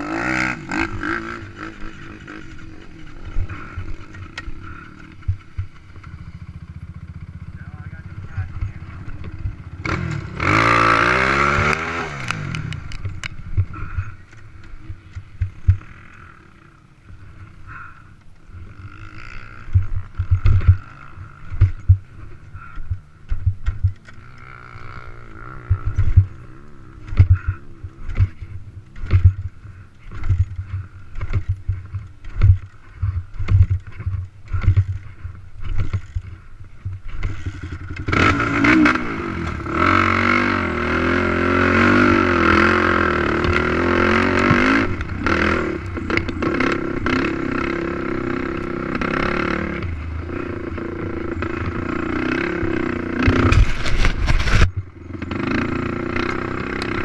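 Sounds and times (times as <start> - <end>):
quad engine revving: 0.0 - 57.0
sharp low thumps: 15.2 - 15.9, 19.7 - 20.9, 21.5 - 24.0, 25.6 - 26.4, 27.0 - 37.4.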